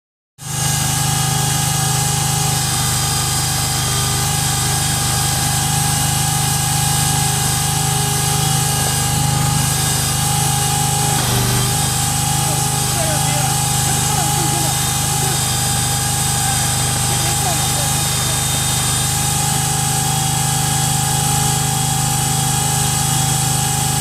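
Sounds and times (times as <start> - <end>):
drilling rig drone and whine: 5.0 - 24.0.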